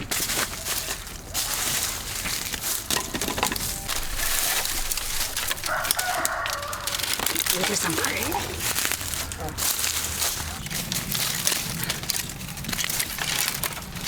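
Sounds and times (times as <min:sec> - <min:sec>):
rustling and crunching with clicks: 0:00.0 - 0:14.0.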